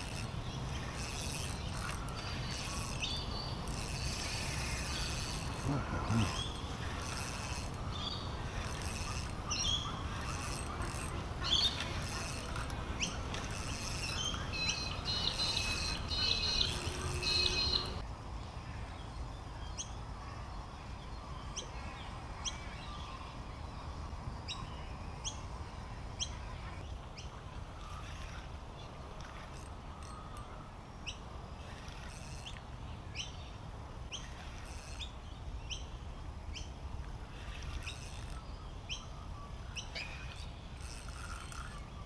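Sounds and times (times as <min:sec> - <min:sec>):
birds chirping and calling: 0:00.0 - 0:18.0.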